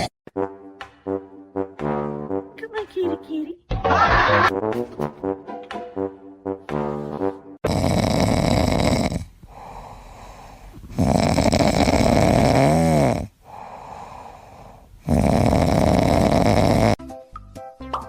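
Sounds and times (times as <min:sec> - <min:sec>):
loud snoring: 0:07.6 - 0:17.0
quiet breathing: 0:09.2 - 0:11.0, 0:13.3 - 0:15.1.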